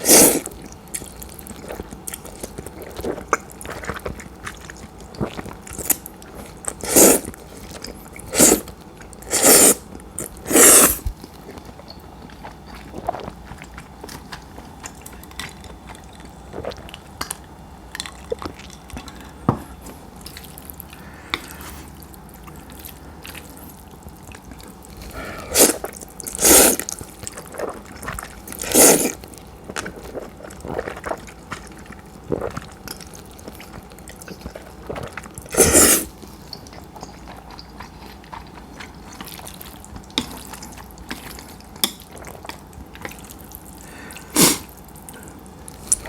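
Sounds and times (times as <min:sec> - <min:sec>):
person slurping noodles: 0:00.0 - 0:00.6, 0:06.8 - 0:07.3, 0:08.2 - 0:11.1, 0:25.0 - 0:27.8, 0:28.5 - 0:29.2, 0:35.5 - 0:36.2, 0:44.1 - 0:44.7
soft chewing: 0:00.0 - 0:46.0.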